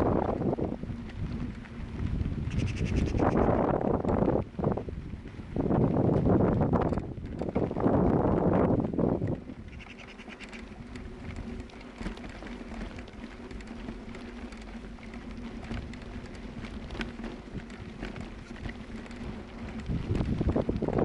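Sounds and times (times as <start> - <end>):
wind gust on microphone: 0.0 - 9.8, 16.5 - 21.0
small ticks and patter: 0.0 - 21.0.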